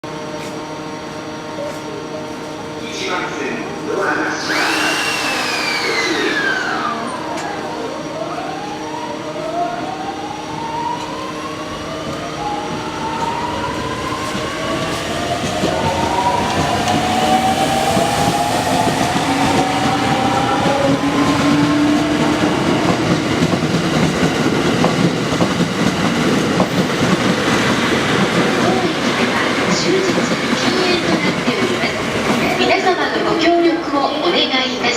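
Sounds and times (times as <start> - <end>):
electric train motor tones: 4.1 - 24.2
wheels on rail clickety-clack: 14.2 - 32.6.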